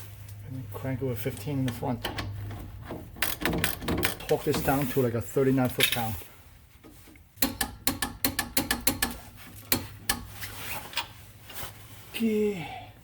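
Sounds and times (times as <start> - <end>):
ratchet wrench clicking: 3.2 - 4.3, 7.4 - 10.3.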